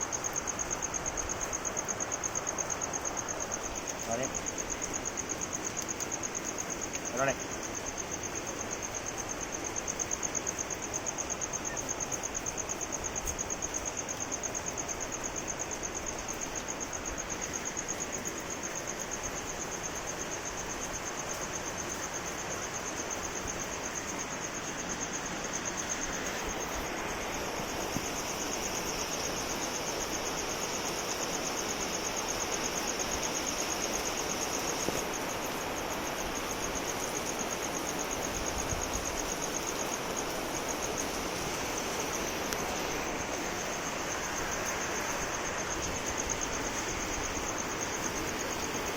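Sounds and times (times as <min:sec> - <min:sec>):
high-pitched insect trill: 0:00.0 - 0:48.9
steady rain falling: 0:00.0 - 0:48.9.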